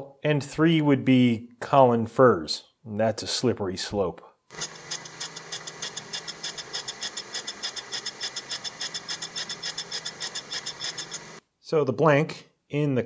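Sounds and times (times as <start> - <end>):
grinding wheel pulsing hiss: 4.5 - 11.4
motor hum: 4.5 - 11.4.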